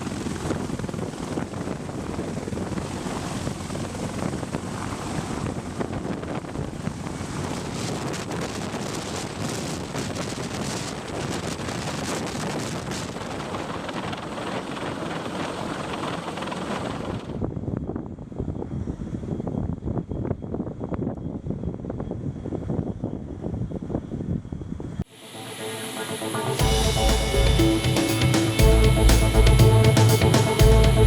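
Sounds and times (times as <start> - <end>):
wind buffeting microphone: 0.0 - 25.0
loud rushing noise: 25.0 - 31.0.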